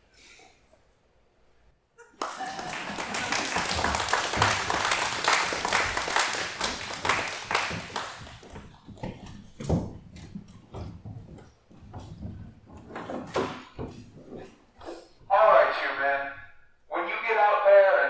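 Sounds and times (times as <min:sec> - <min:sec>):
audience applauding: 0:02.1 - 0:08.6.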